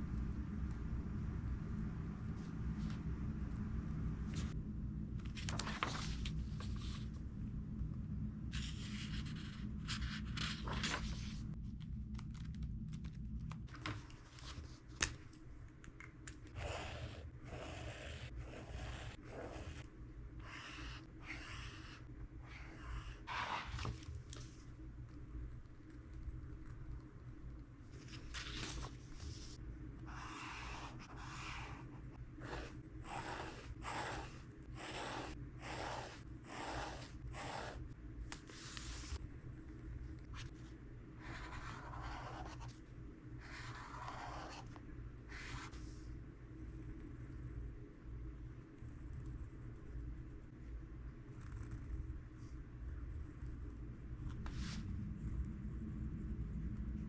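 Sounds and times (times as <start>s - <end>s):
steady low hum: 0.0s - 57.0s
pen scratching on paper: 16.5s - 23.8s, 30.1s - 37.9s, 41.2s - 42.7s, 43.4s - 44.7s.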